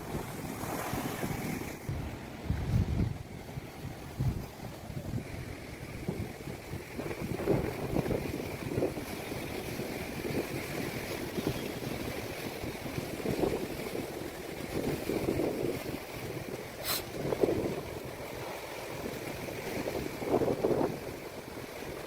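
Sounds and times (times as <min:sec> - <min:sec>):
sea waves washing onto beach: 0:00.0 - 0:22.0
wind buffeting microphone: 0:00.0 - 0:22.0.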